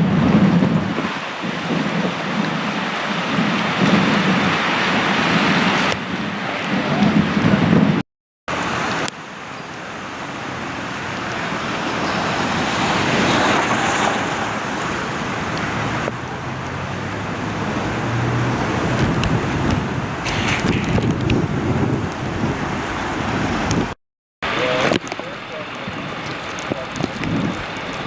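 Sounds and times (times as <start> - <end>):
wind on microphone: 0.0 - 8.0, 10.4 - 28.0
heavy rain: 0.0 - 28.0.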